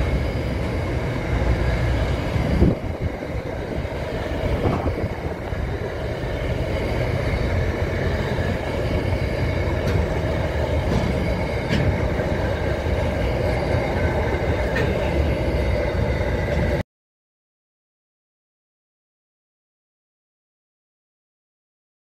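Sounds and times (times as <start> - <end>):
train wheels rumbling on rail: 0.0 - 16.8.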